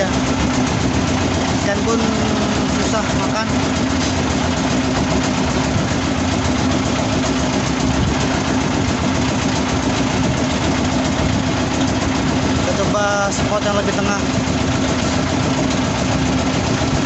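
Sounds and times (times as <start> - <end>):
boat engine running: 0.0 - 17.0
wind and water noise: 0.0 - 17.0.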